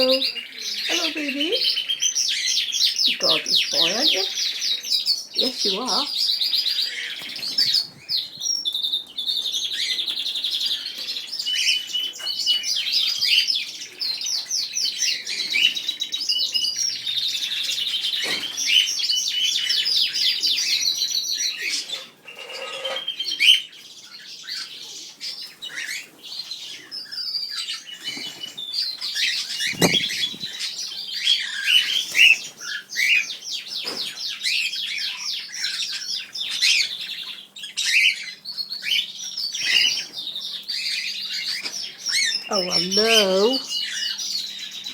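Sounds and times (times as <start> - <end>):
birds chirping and singing: 0.0 - 44.9
wings flapping: 29.5 - 30.7
brief thud: 29.7 - 30.5.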